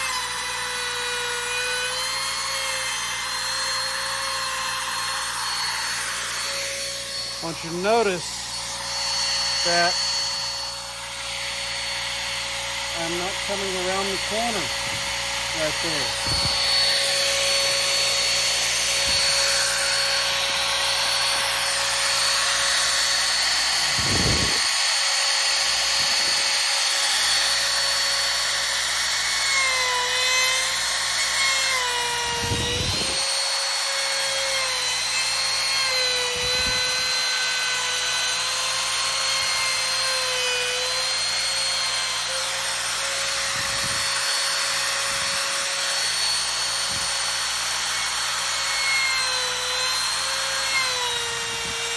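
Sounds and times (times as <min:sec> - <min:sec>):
router whining while cutting wood: 0:00.0 - 0:51.9.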